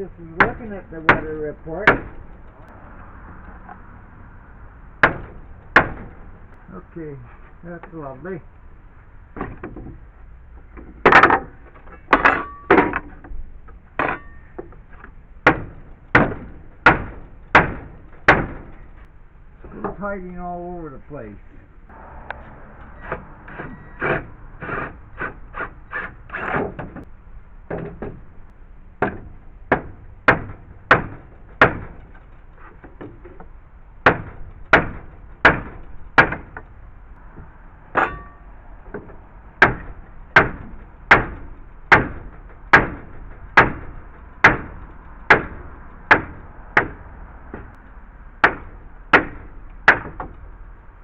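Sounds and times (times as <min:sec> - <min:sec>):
hammer striking wood: 0:00.4 - 0:02.2, 0:05.0 - 0:06.2, 0:15.4 - 0:18.7, 0:29.0 - 0:32.0, 0:34.0 - 0:36.6, 0:38.9 - 0:47.7, 0:48.4 - 0:50.4.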